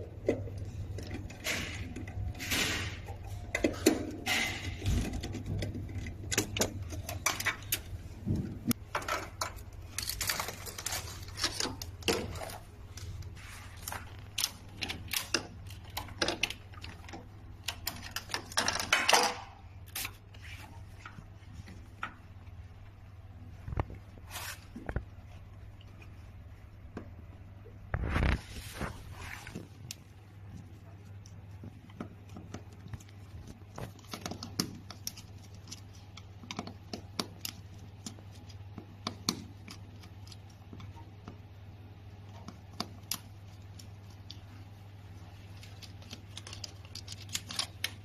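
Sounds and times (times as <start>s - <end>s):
metal parts clicking and clinking: 8.9s - 12.6s.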